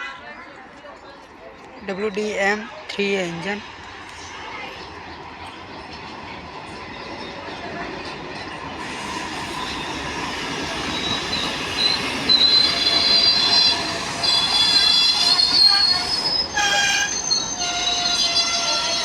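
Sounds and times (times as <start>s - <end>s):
train rolling: 0.1s - 19.0s
train wheels and brakes squealing: 6.7s - 19.0s.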